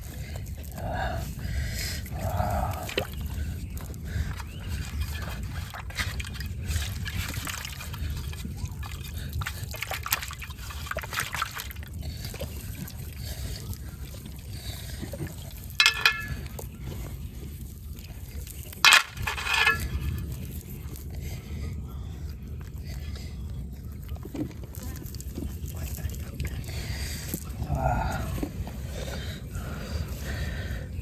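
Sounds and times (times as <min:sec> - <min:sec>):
water sloshing and trickling: 0:02.0 - 0:16.8.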